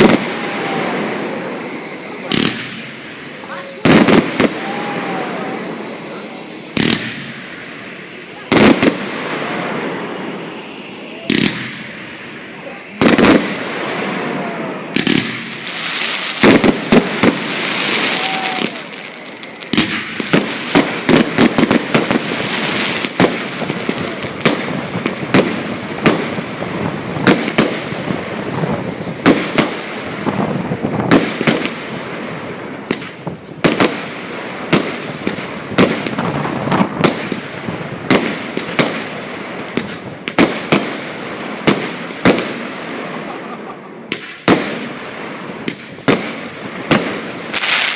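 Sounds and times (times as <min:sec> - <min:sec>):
fireworks bangs: 0:00.0 - 0:47.9
fireworks crackle: 0:00.0 - 0:47.9.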